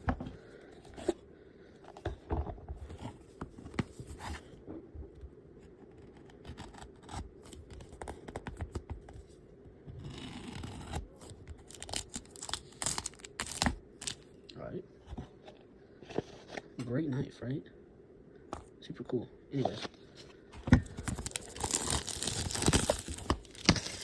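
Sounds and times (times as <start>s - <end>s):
knife cutting packaging: 10.2s - 14.2s, 20.8s - 24.0s.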